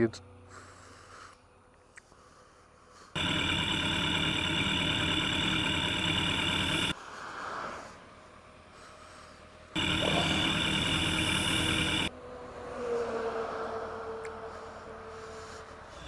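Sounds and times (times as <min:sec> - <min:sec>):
motorcycle engine running: 0:03.2 - 0:07.0, 0:09.8 - 0:12.1.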